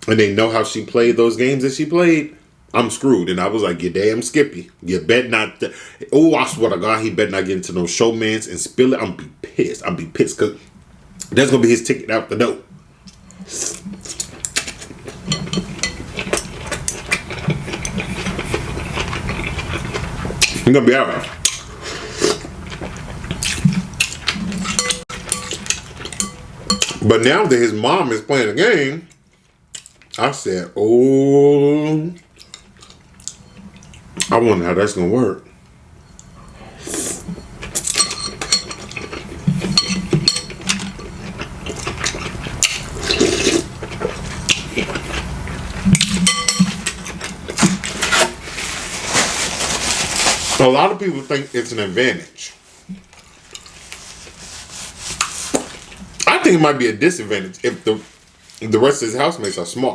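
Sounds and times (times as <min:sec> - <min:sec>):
steady noisy hiss: 0:00.0 - 0:59.9
chewing and slurping: 0:13.0 - 0:20.6, 0:36.3 - 0:48.4
utensils clinking against a bowl: 0:13.7 - 0:18.0, 0:23.4 - 0:27.0, 0:37.2 - 0:43.7, 0:45.9 - 0:48.4, 0:59.3 - 0:59.8.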